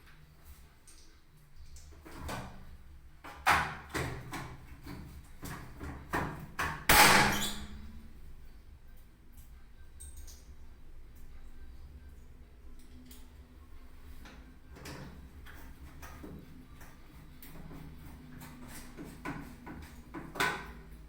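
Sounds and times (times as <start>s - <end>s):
washing machine parts knocking: 19.0s - 20.8s.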